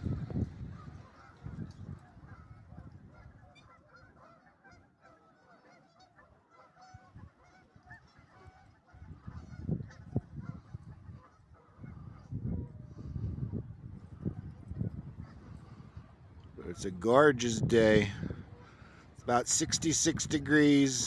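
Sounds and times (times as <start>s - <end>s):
waterfowl squawking: 2.2s - 12.2s.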